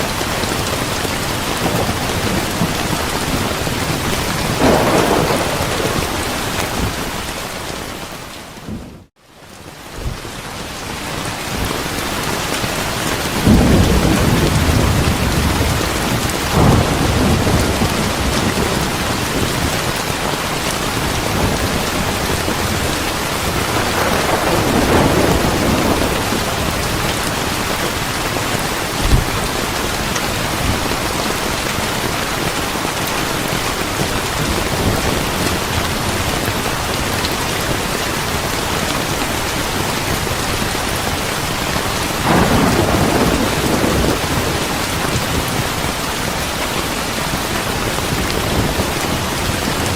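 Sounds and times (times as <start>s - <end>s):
heavy rain: 0.0s - 49.9s
thunder rumbling: 0.1s - 9.1s, 12.9s - 32.5s, 33.3s - 49.9s
sharp thunder crack: 1.6s - 7.6s, 23.5s - 27.2s, 42.2s - 44.7s.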